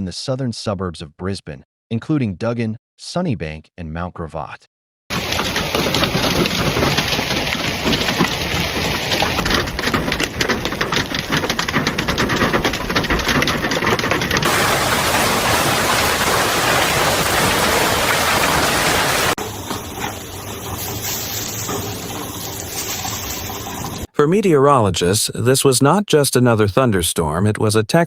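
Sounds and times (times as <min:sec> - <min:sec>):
hailstones clattering: 0:05.1 - 0:24.1
heavy rain pelting down: 0:05.1 - 0:24.1.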